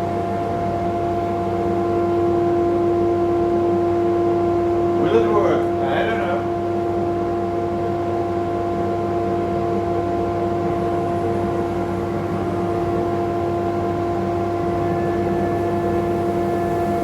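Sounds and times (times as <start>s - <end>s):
vacuum cleaner whine: 9.3s - 17.0s.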